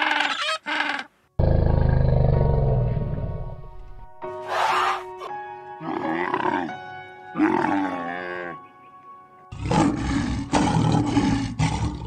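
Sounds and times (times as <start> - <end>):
camel calls: 0.0 - 1.1
lion roaring: 1.4 - 3.6, 9.5 - 12.0
light background music: 3.4 - 11.5.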